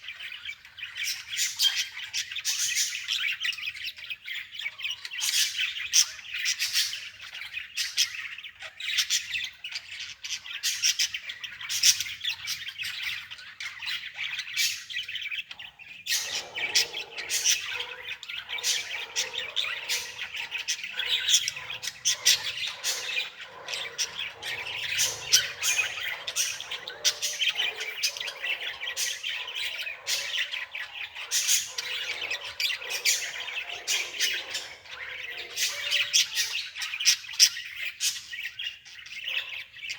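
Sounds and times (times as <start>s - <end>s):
birds chirping and squawking: 0.0s - 39.9s.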